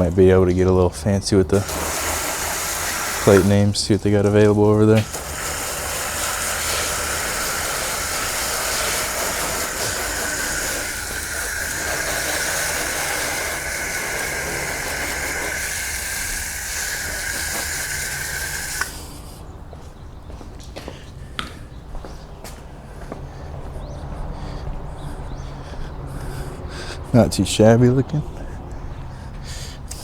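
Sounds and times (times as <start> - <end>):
pressure washer spraying water: 1.5 - 19.4.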